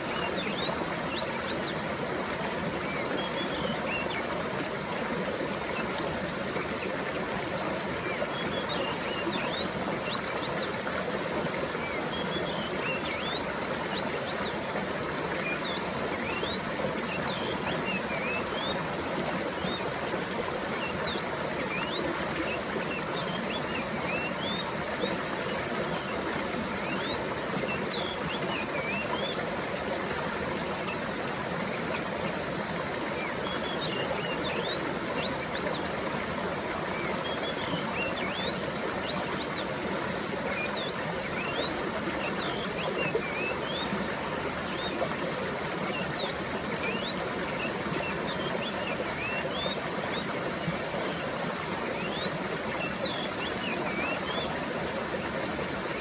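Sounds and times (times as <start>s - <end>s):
water flowing over rocks: 0.0s - 56.0s.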